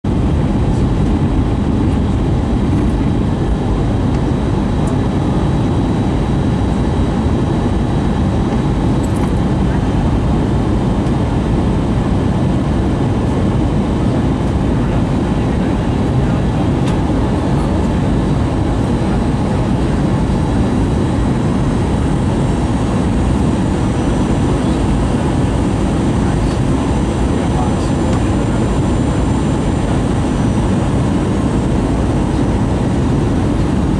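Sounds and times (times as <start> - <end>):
airplane cabin engine roar: 0.0 - 33.9.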